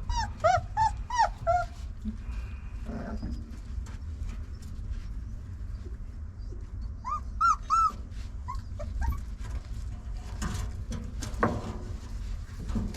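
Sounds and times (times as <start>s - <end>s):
puppies whining: 0.0s - 2.2s, 2.8s - 3.6s, 4.5s - 9.4s.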